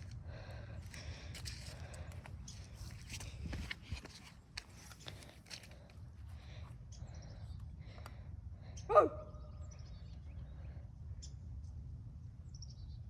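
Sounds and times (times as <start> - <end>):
low outdoor rumble: 0.0 - 13.0
small birds chirping: 6.4 - 11.4.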